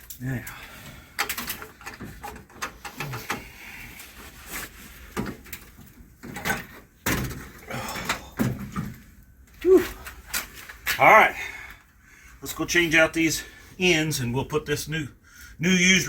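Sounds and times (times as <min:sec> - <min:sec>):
metal parts clunking and scraping: 0:00.8 - 0:03.6, 0:05.0 - 0:09.2.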